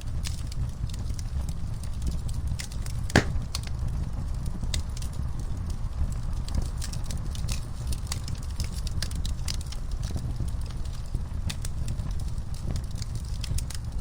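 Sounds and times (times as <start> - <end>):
wood fire crackling and popping: 3.2 - 3.5.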